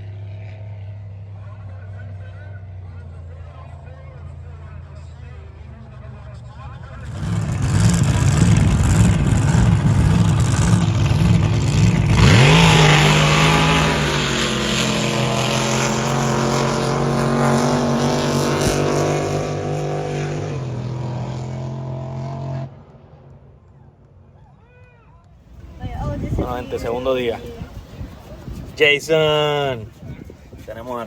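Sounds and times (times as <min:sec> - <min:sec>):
boat engine idling and revving: 0:00.0 - 0:23.0, 0:25.5 - 0:31.0.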